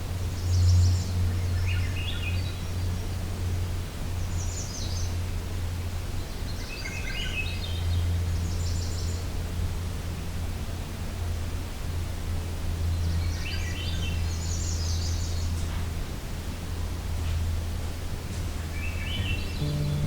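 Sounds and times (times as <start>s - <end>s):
songbirds singing: 0.0s - 9.6s, 12.7s - 15.8s, 18.3s - 20.0s
steady low hum: 14.2s - 20.0s.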